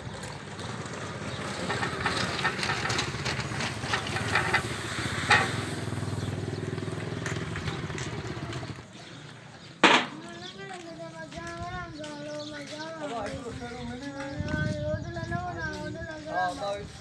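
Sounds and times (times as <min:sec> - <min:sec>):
vehicle engine running: 0:00.0 - 0:09.0
rattling and clatter: 0:00.2 - 0:05.8
loud knock: 0:09.8 - 0:10.2.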